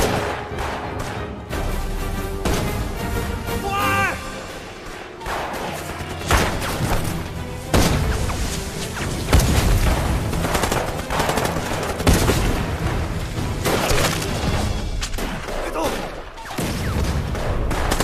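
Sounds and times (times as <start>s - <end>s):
gunfire volleys: 0.0s - 1.5s, 4.8s - 7.1s, 15.0s - 18.0s
film score music: 0.0s - 18.0s.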